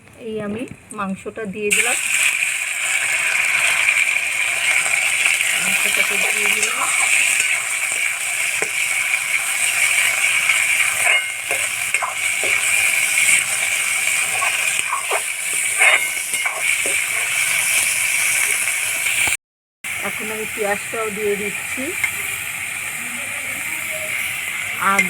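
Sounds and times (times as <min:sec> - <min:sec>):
meat sizzling in hot oil: 0:01.7 - 0:25.0
spatula scraping a pan: 0:04.6 - 0:19.2.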